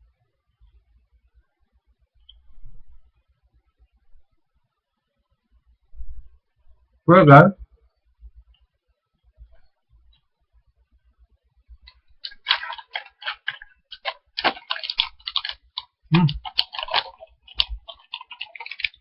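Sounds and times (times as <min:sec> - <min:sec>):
person chewing crunchy snack: 0:11.8 - 0:19.0.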